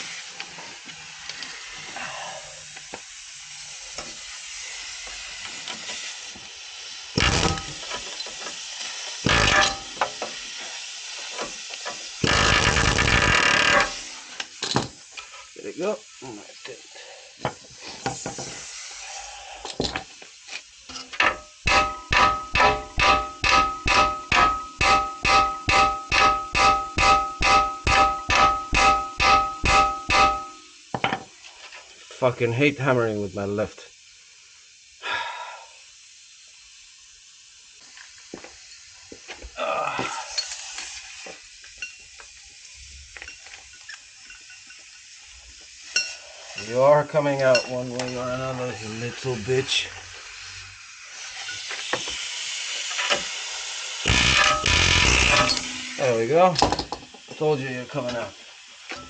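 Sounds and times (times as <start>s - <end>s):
hammer striking steel: 7.2s - 7.9s, 9.3s - 10.1s, 21.2s - 30.7s, 54.1s - 56.0s
metallic scrape: 20.9s - 30.7s, 54.1s - 56.2s
loose metal clanks: 54.1s - 56.0s.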